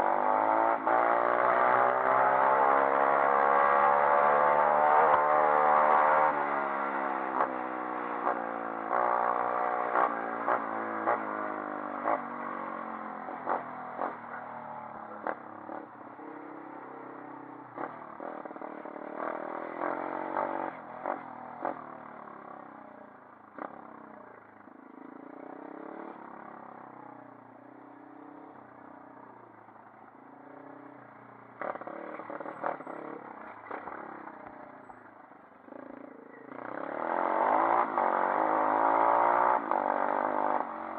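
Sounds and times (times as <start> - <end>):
motorbike engine revving: 0.0 - 14.4, 31.6 - 35.0, 35.7 - 40.9.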